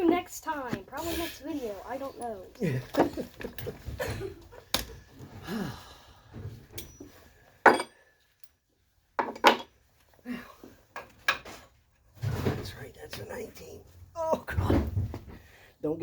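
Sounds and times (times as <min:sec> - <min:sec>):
metal tools clacking: 0:06.8 - 0:08.6.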